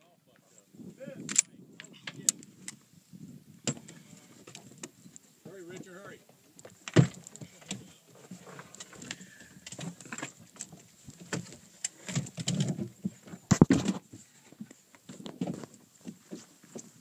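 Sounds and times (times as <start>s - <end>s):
rifle and gear clattering: 1.2s - 2.8s, 6.6s - 14.0s.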